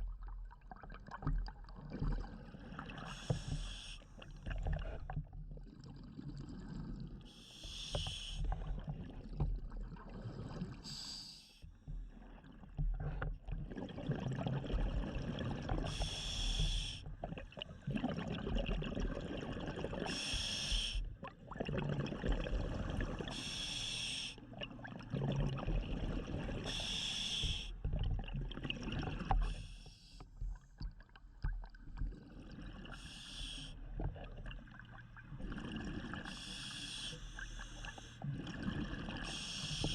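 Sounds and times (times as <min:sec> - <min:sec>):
diver breathing through regulator: 0:03.0 - 0:04.1, 0:07.3 - 0:08.7, 0:15.8 - 0:17.1, 0:20.1 - 0:21.1, 0:23.3 - 0:24.4, 0:26.6 - 0:27.8, 0:32.1 - 0:33.9, 0:35.5 - 0:39.9
exhaled bubbles: 0:12.0 - 0:23.8, 0:24.4 - 0:29.8, 0:30.4 - 0:39.9.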